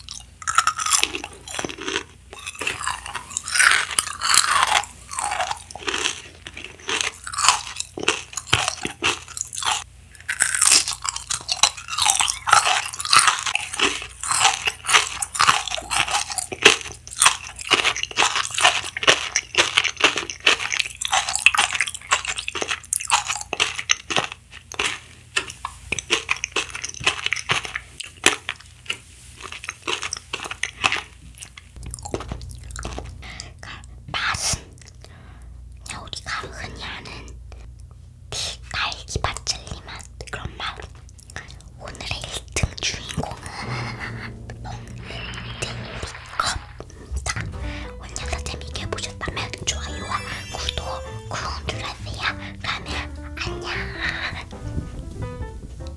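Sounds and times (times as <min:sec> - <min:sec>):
person chewing jelly candy: 0:00.0 - 0:45.0, 0:45.9 - 0:53.8.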